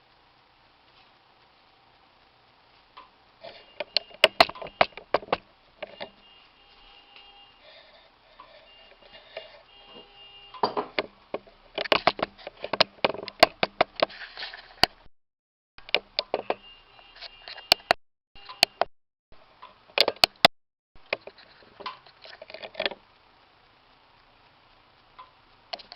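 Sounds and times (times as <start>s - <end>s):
kitchenware clinking and knocking: 10.6s - 11.0s.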